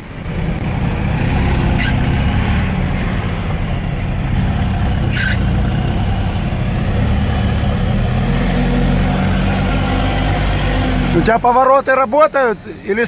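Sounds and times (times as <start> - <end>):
vehicle engine idling: 0.0 - 8.5
brief high squeak: 1.8 - 2.0, 5.1 - 5.5.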